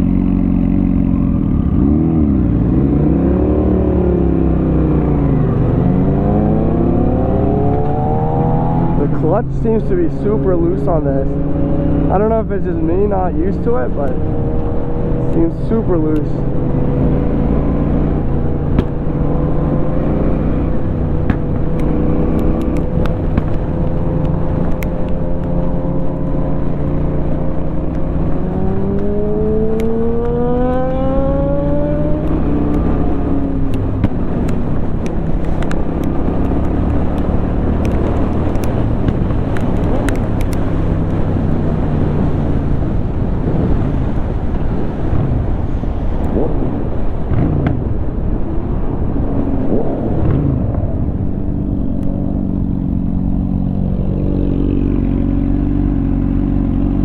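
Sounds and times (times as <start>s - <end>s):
motorcycle engine running: 0.0s - 6.2s, 50.2s - 57.0s
wind rush over microphone: 11.0s - 57.0s.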